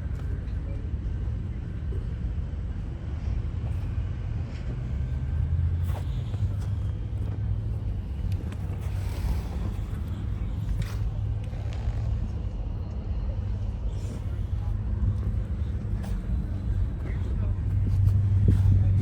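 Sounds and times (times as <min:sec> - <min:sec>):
motor vehicle rumbling: 0:00.0 - 0:19.0.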